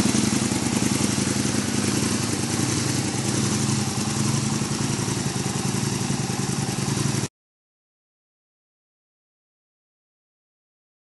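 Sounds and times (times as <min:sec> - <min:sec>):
motorcycle engine idling: 0:00.0 - 0:07.3.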